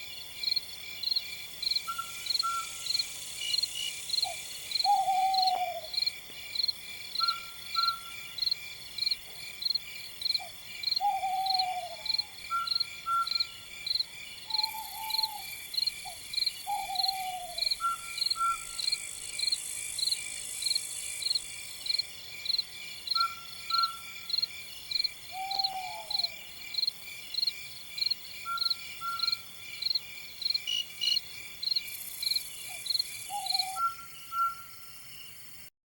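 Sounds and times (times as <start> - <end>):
insect chirping: 0.0 - 35.7
night bird calling: 1.6 - 6.1, 7.1 - 8.6, 10.2 - 20.2, 22.5 - 35.0.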